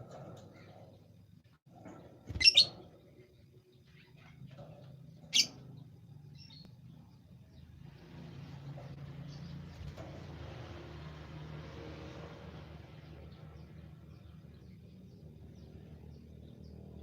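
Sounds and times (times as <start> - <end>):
bird chirping: 2.1 - 7.7.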